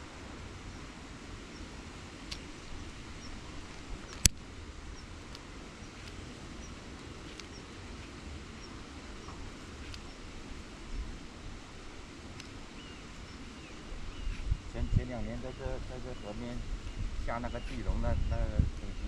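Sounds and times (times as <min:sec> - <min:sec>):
low background noise: 0:00.0 - 0:19.0
sharp click: 0:03.7 - 0:04.4.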